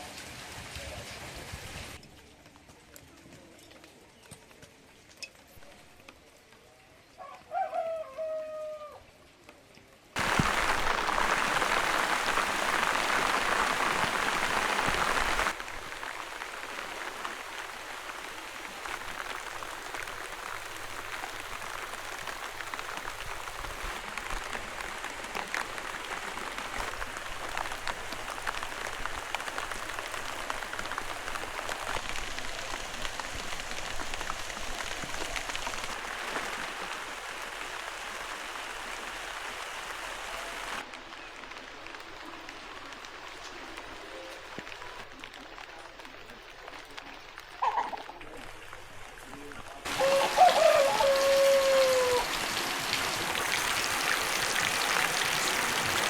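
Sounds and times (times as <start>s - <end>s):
heavy rain falling: 0.0s - 2.0s, 10.2s - 56.0s
raindrops pattering: 0.0s - 7.0s, 9.3s - 56.0s
animal call: 49.9s - 52.6s.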